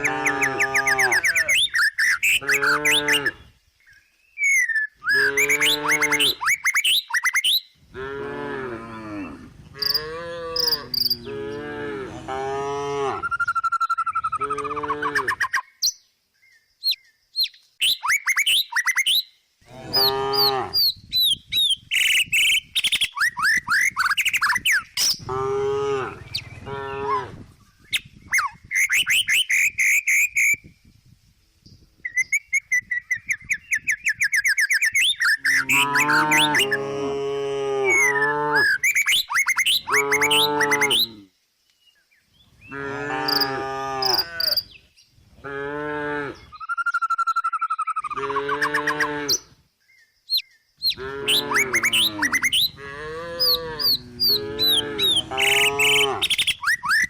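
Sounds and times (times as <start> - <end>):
cow mooing: 0.0 - 1.6, 2.4 - 3.4, 5.2 - 6.4, 8.0 - 13.3, 19.7 - 20.8, 25.2 - 27.3, 35.5 - 38.7, 40.0 - 41.2, 42.7 - 44.6, 45.4 - 46.4, 48.2 - 49.4, 51.0 - 56.4
birds chirping and trilling: 0.0 - 57.0.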